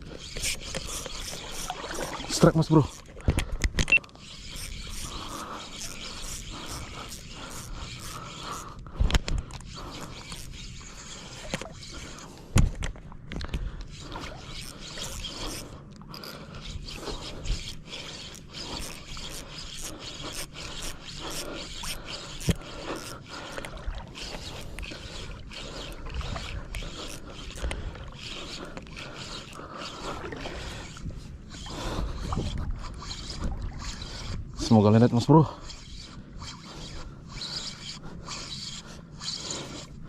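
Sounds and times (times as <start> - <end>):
fishing reel gears rattling: 0.0 - 40.0.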